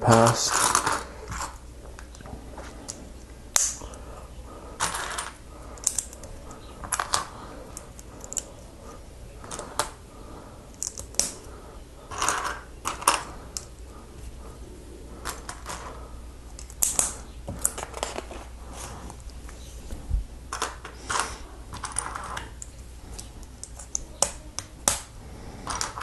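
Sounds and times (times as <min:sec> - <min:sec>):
plastic bricks clicking: 0:04.8 - 0:08.5.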